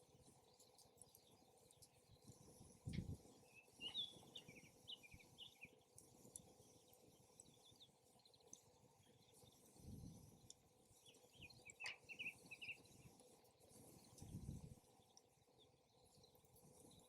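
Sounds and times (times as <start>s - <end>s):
small bird chirping: 3.4s - 5.8s, 11.0s - 13.0s.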